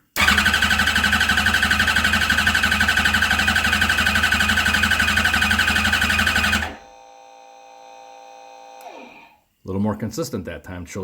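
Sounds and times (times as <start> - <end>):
motorcycle engine cranking on starter: 0.0 - 6.8.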